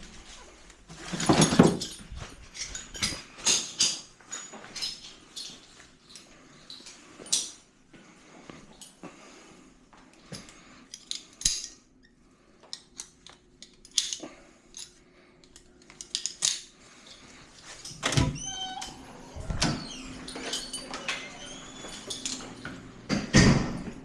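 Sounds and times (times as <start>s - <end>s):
metallic clicks and jangles: 19.6s - 22.8s.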